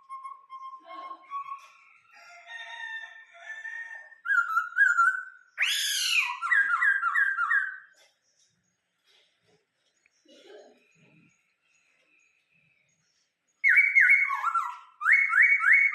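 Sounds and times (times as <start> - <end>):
bird singing whistled phrases: 0.0 - 2.0, 4.2 - 7.9, 13.6 - 15.9.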